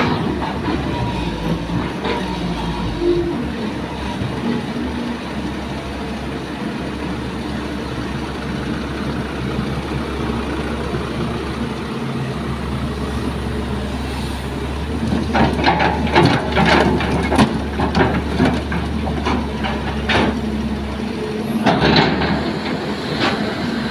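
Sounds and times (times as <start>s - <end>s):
diesel engine rumbling: 0.0s - 23.9s
sharp knocks and clatter: 15.1s - 20.4s, 21.6s - 23.4s.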